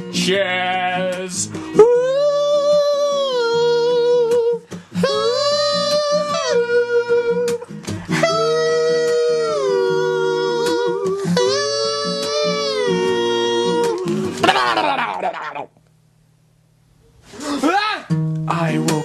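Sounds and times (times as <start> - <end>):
person singing wordless melody: 0.0 - 15.0.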